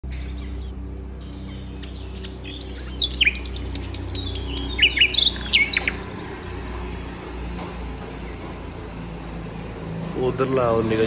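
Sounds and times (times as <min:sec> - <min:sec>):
songbird whistling and chirping: 0:00.0 - 0:06.5
low steady hum: 0:00.0 - 0:06.6.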